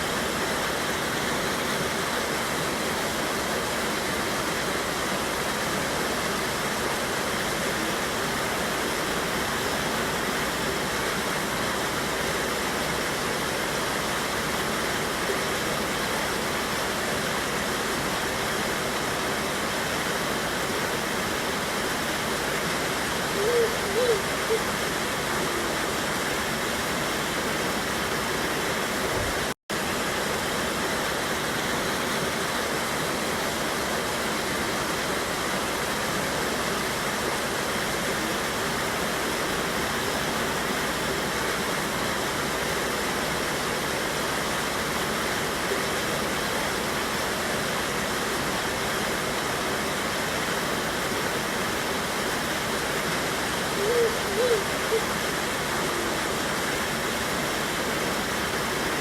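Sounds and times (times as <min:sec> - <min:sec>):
water rushing over waterfall: 0:00.0 - 0:59.0.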